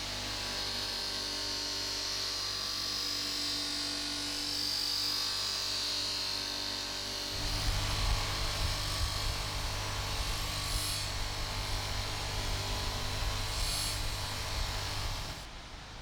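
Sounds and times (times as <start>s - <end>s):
power tool humming: 7.3s - 15.5s.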